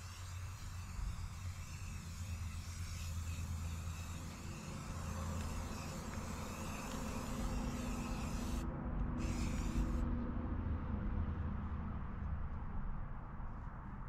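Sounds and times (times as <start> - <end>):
aerosol spray can hissing: 0.0 - 8.6, 9.2 - 10.0.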